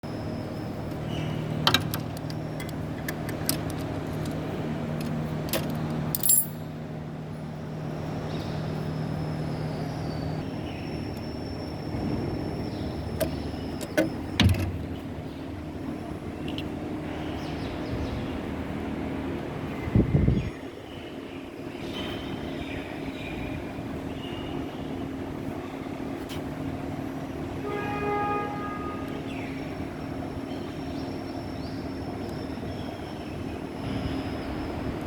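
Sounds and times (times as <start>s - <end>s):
low machine hum: 0.0s - 35.0s
metallic clinks of hand tools: 6.1s - 6.6s.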